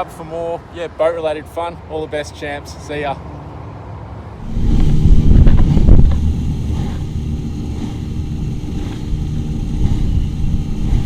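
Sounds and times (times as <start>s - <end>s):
outboard motor running: 4.4s - 11.0s.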